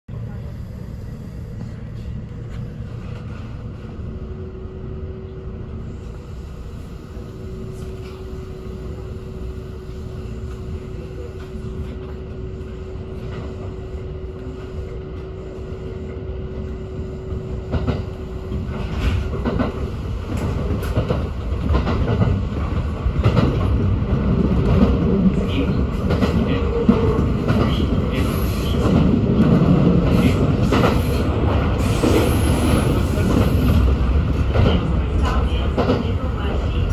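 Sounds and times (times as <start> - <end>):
train rumble: 0.1 - 36.9.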